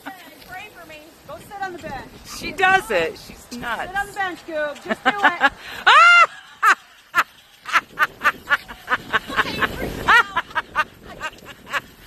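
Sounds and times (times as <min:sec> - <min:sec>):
person laughing under breath: 0:05.4 - 0:12.0.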